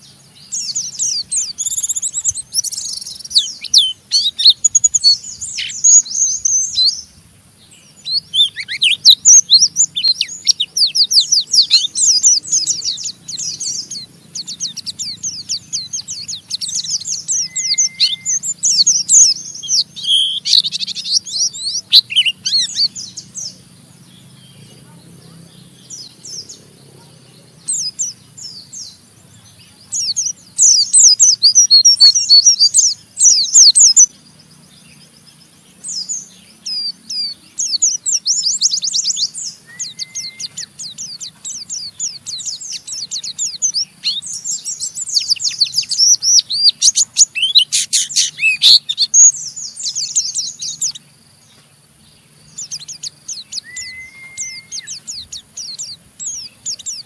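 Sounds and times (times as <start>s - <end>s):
birds twittering harshly: 0.0s - 57.0s
low bird whistle: 8.0s - 23.2s, 36.7s - 51.0s, 52.6s - 57.0s.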